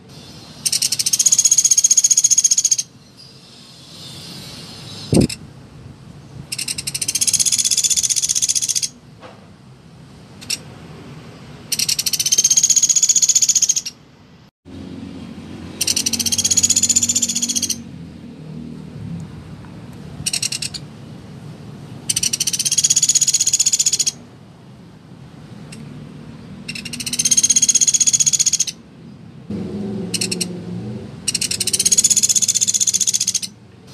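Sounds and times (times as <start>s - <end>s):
woodpecker rattling trills: 0.6s - 2.9s, 6.5s - 9.0s, 11.7s - 14.0s, 15.8s - 17.9s, 20.3s - 20.8s, 22.1s - 24.2s, 26.7s - 28.8s, 30.2s - 30.5s, 31.3s - 33.6s.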